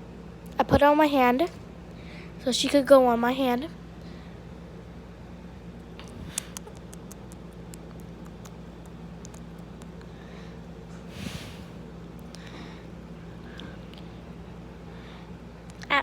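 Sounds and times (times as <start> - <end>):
steady low hum: 0.0 - 16.0
bird beak and claws clicking: 6.0 - 8.6.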